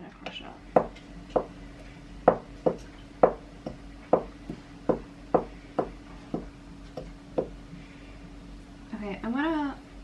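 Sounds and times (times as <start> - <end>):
wooden spoon pounding cloves: 0.7 - 7.6.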